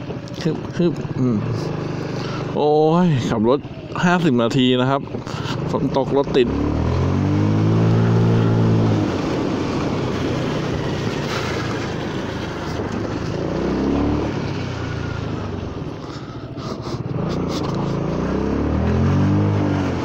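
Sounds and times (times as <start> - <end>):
scooter engine pulling away: 0.0 - 20.0
tyres hissing on wet road: 7.9 - 15.5.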